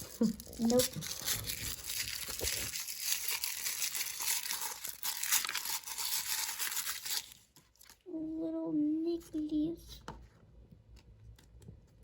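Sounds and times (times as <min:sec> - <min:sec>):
packaging wrapper crinkling: 0:00.0 - 0:08.0.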